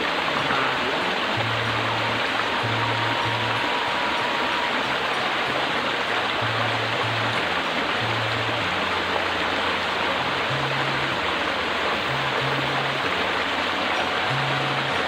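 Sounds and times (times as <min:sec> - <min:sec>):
music bass notes: 0:00.0 - 0:15.0
stream rushing: 0:00.0 - 0:15.0.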